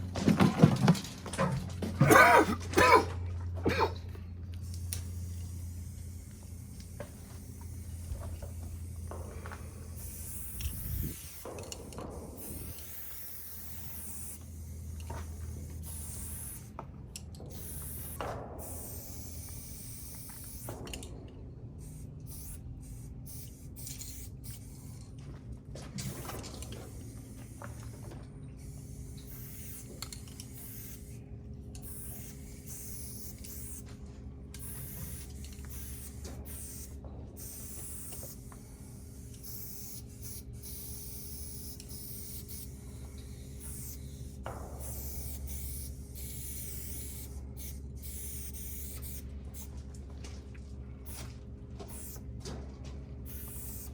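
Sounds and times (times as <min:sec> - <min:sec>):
spray paint can hissing: 0:04.6 - 0:16.7, 0:17.5 - 0:21.0, 0:21.8 - 0:25.1, 0:26.0 - 0:28.0, 0:28.6 - 0:31.2, 0:31.8 - 0:33.9, 0:34.6 - 0:49.8, 0:51.0 - 0:52.3, 0:53.2 - 0:53.9.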